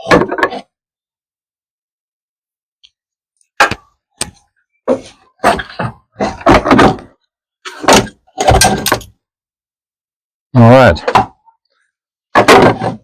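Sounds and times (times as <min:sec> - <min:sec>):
metal parts clunking and clattering: 0:07.7 - 0:09.2.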